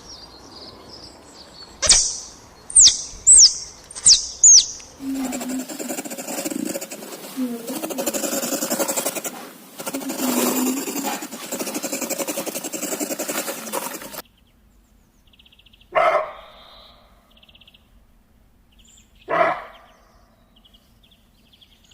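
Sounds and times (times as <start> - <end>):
sharp bark-like animal calls: 2.8 - 14.2, 15.9 - 17.1, 19.3 - 20.0
rasping animal sound: 4.0 - 14.2.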